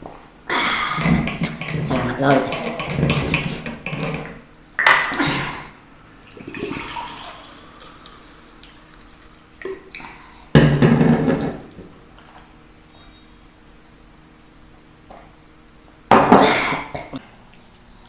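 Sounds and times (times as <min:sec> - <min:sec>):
mouth eating noises: 0:00.4 - 0:04.3, 0:05.0 - 0:10.3
gulps of liquid: 0:05.1 - 0:10.3.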